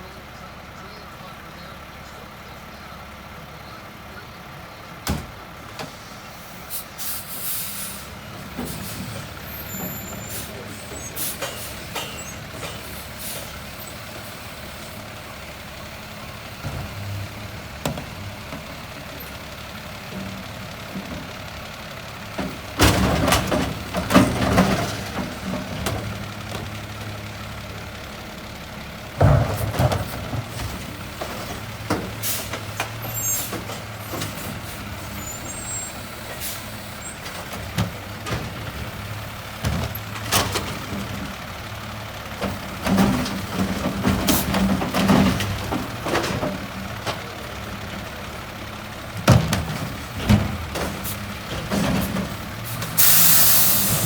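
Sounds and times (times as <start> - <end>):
truck diesel engine running: 0.0 - 54.0
air brake hisses: 6.0 - 8.1, 53.0 - 54.0.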